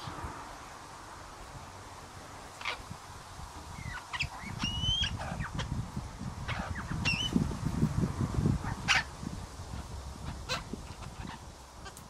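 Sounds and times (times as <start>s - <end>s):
birds calling: 2.4s - 3.0s, 3.6s - 7.5s, 8.6s - 12.0s
whistled bird notes: 6.6s - 7.4s.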